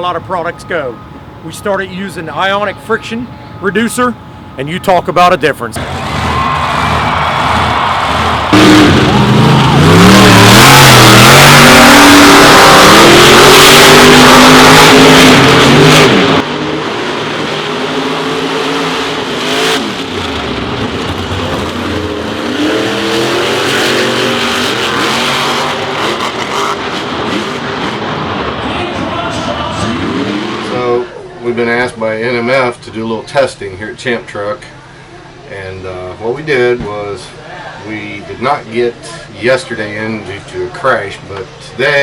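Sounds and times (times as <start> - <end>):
truck engine revving: 5.7 - 31.0.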